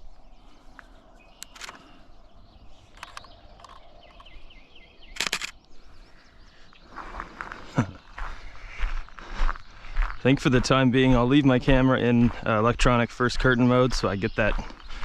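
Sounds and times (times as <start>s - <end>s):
wild birds singing faintly: 0.0s - 15.0s
sharp clicks: 1.4s - 2.0s, 2.9s - 4.4s, 5.1s - 5.7s.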